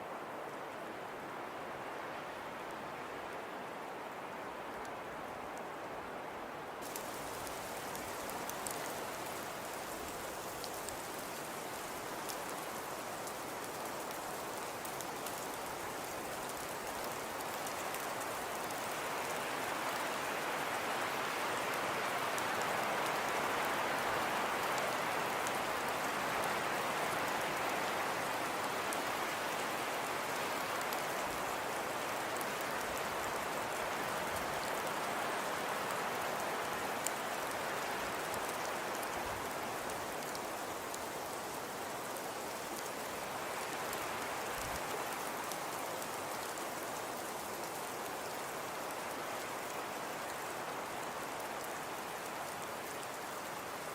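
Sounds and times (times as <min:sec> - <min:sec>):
fire crackles and pops: 0:06.8 - 0:19.4.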